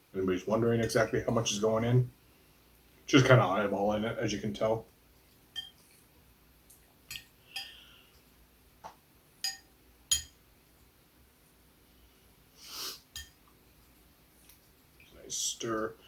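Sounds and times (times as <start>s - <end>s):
spoon clinking against dish: 5.6s - 5.8s, 7.1s - 7.8s, 9.4s - 10.4s, 13.2s - 13.4s.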